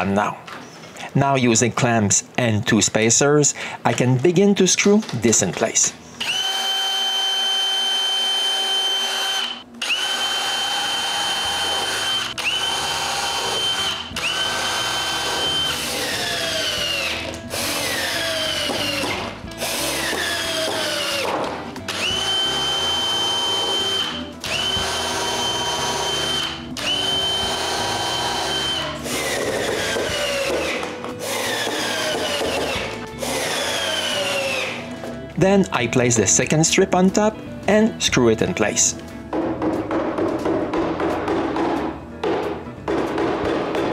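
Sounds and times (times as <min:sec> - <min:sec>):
power drill driving screws: 0:06.2 - 0:34.8.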